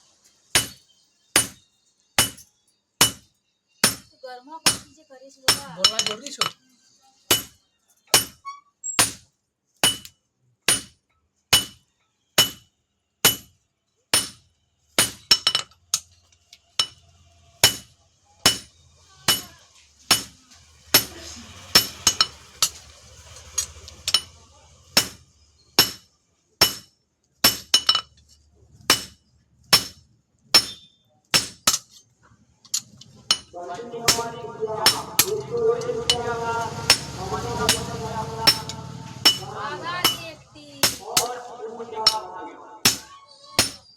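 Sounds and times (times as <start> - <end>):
hammer striking steel on anvil: 0.6 - 0.8, 1.4 - 1.6, 2.2 - 4.1, 4.7 - 4.9, 5.5 - 6.6, 7.3 - 8.4, 9.0 - 9.2, 9.8 - 10.1, 10.7 - 11.8, 12.4 - 12.6, 13.2 - 13.5, 14.2 - 14.4, 15.0 - 16.1, 17.6 - 18.7, 19.3 - 20.4, 21.0 - 22.8, 25.0 - 25.2, 25.8 - 28.1, 28.9 - 32.0, 32.7 - 41.4, 42.0 - 43.9.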